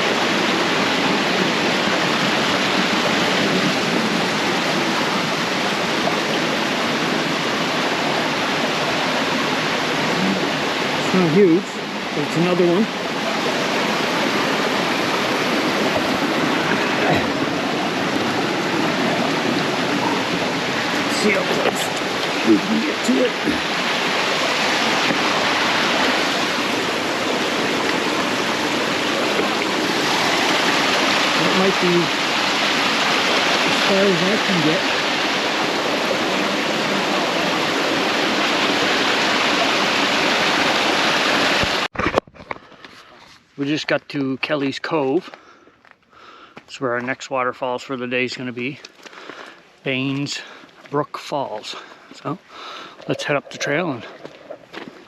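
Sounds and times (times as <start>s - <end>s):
small waterfall rushing: 0.0s - 41.9s.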